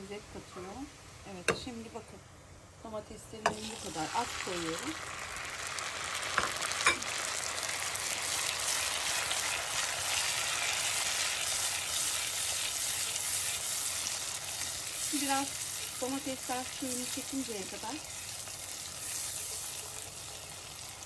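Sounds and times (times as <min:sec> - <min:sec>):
tomatoes sizzling in a pot: 0:00.0 - 0:21.0
spatula stirring: 0:08.1 - 0:20.8.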